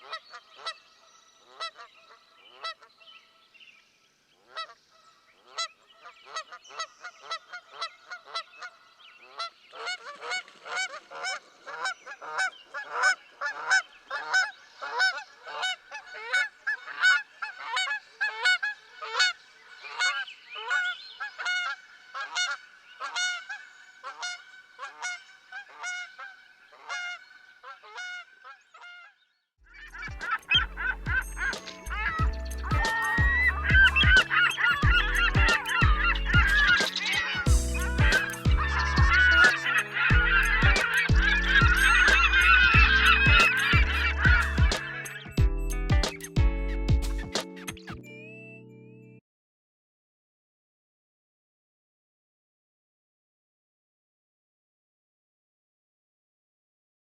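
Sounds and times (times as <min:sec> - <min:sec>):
flamingos honking: 0:29.7 - 0:45.4.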